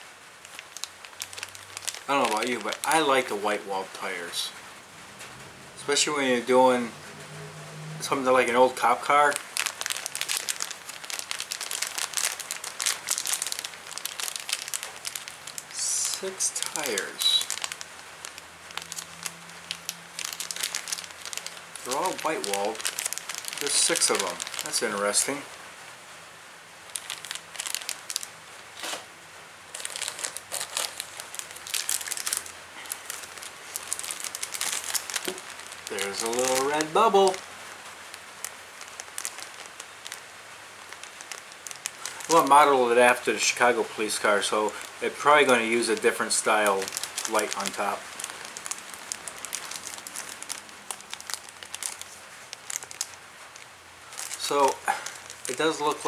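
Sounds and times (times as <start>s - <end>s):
plastic packaging crinkling: 0.0s - 6.9s, 8.0s - 25.9s, 26.8s - 56.0s
steady hiss: 0.0s - 7.2s, 8.0s - 56.0s.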